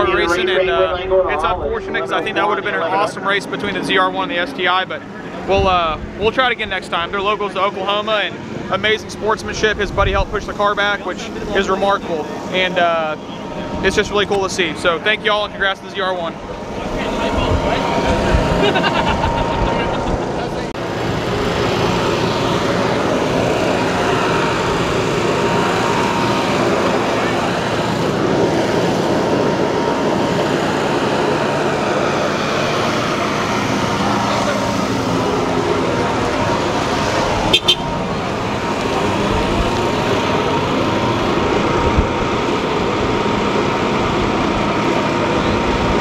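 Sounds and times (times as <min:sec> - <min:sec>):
car engine running: 0:00.0 - 0:46.0.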